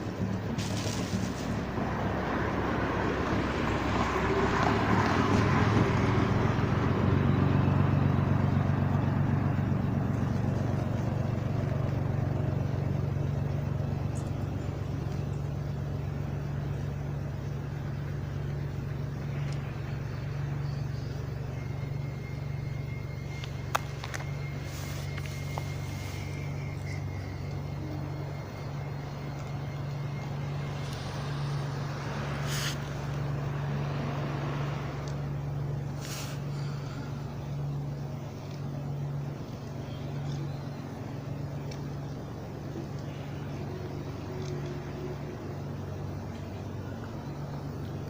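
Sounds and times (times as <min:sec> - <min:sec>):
rush of broadband noise: 0:00.0 - 0:04.4
engine idling hum: 0:00.0 - 0:48.0.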